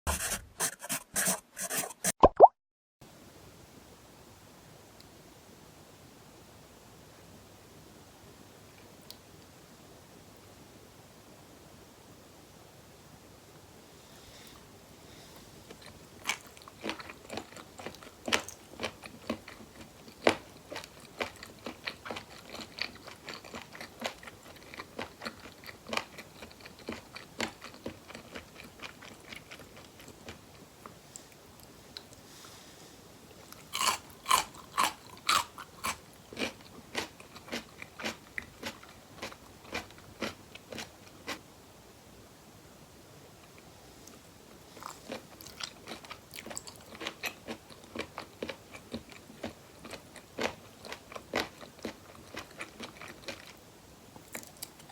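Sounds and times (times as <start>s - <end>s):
chewing with wet sticky clicks: 15.7s - 32.2s, 33.5s - 41.4s, 45.1s - 53.6s, 54.2s - 54.9s
loud crunchy bites: 33.6s - 38.8s.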